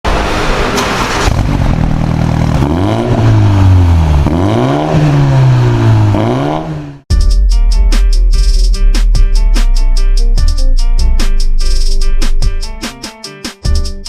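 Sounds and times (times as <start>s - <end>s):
car engine revving: 0.1s - 7.1s.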